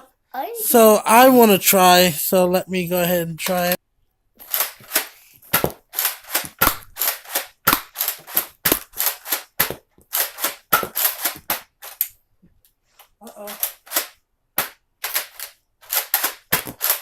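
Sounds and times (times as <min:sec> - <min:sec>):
toy blaster firing darts: 0:04.6 - 0:11.6.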